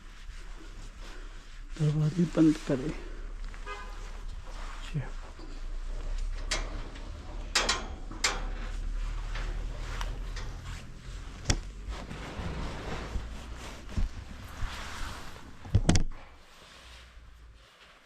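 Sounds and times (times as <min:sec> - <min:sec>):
low rumble: 0:04.2 - 0:15.7
sharp clicks and knocks: 0:06.2 - 0:08.7, 0:15.7 - 0:16.2.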